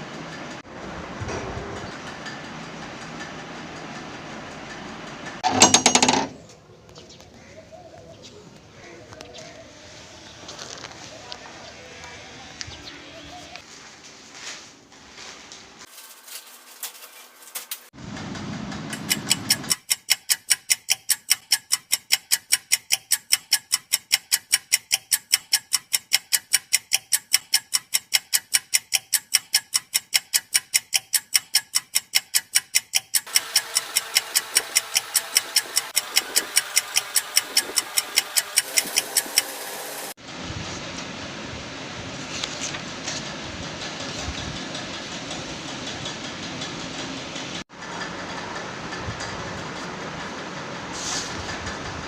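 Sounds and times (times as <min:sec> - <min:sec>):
mechanical ticking: 0:18.7 - 0:40.2.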